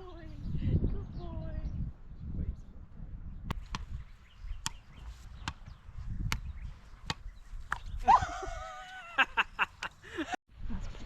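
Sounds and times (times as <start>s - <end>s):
wind rumbling on microphone: 0.0s - 11.0s
wooden paddles striking ball: 3.5s - 4.0s, 4.6s - 7.9s.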